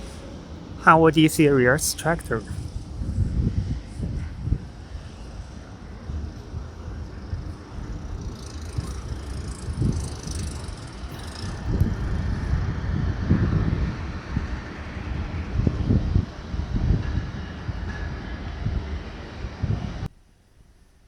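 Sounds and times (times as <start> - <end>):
tractor engine rumbling: 0.0 - 3.7, 4.6 - 13.3.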